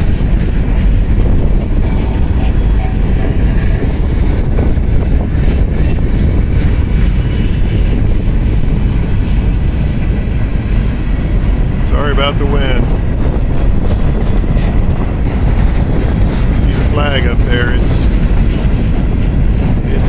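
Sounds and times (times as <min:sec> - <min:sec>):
freight train rolling past: 0:00.0 - 0:20.0
wind buffeting microphone: 0:00.0 - 0:20.0.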